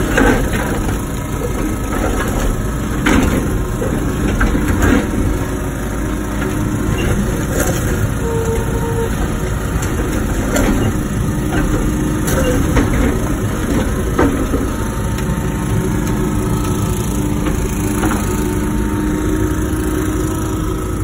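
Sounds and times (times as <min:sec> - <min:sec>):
sharp knocks and clanks: 0:00.0 - 0:05.4, 0:08.6 - 0:15.3
excavator diesel engine running: 0:00.0 - 0:21.0
faint hydraulic whine: 0:07.9 - 0:09.5.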